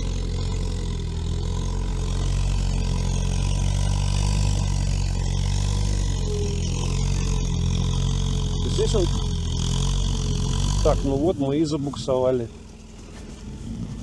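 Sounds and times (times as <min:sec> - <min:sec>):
atv engine under load: 0:00.0 - 0:14.0.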